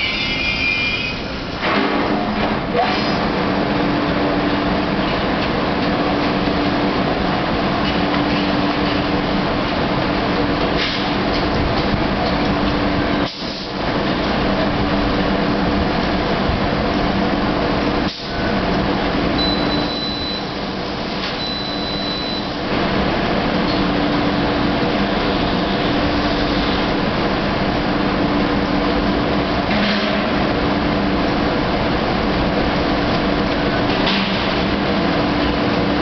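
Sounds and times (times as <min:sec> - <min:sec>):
train equipment humming: 0:00.0 - 0:36.0
short high beeps: 0:19.4 - 0:20.6, 0:21.4 - 0:22.6.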